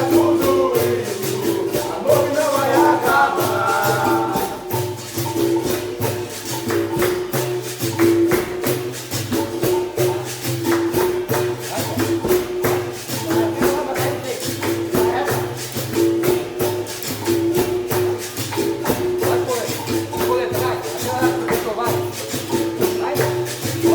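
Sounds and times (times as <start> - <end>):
berimbau notes: 0.0 - 23.9
pandeiro jingles: 0.0 - 23.9.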